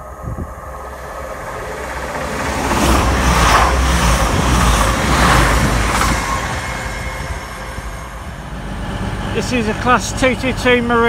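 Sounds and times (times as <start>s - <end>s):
train passing at speed: 0.0s - 11.0s.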